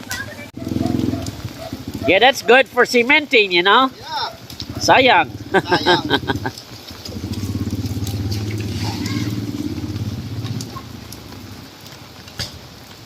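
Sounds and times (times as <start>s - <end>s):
small motorcycle engine passing: 0.6s - 2.4s, 4.3s - 11.8s.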